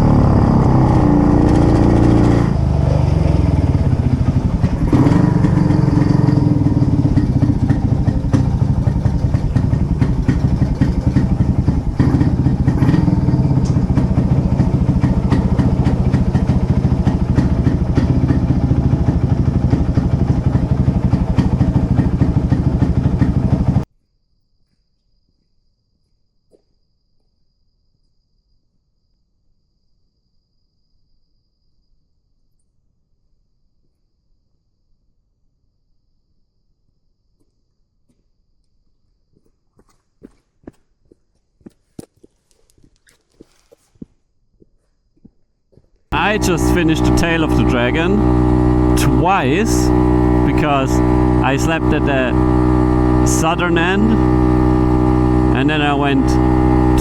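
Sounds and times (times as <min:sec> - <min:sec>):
two-stroke motorcycle engine running: 0:00.0 - 0:23.8, 0:46.2 - 0:57.0.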